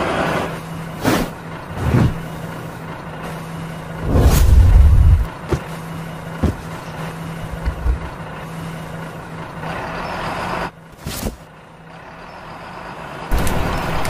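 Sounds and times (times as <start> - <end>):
truck engine humming: 0.0 - 14.0
brief whoosh: 4.0 - 5.2.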